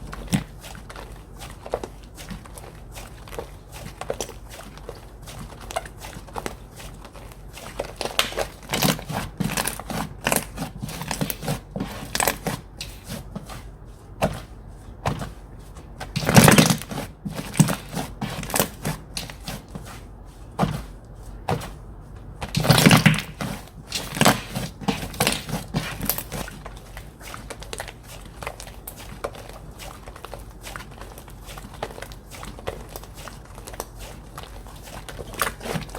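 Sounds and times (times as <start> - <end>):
slime squishing: 0.0 - 35.9.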